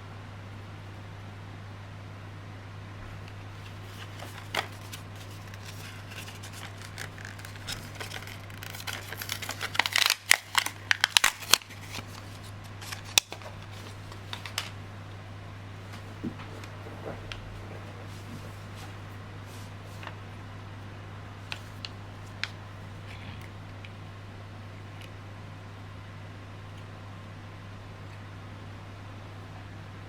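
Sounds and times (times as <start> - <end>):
steady low hum: 0.0 - 30.0
packaging crinkling: 3.5 - 14.8.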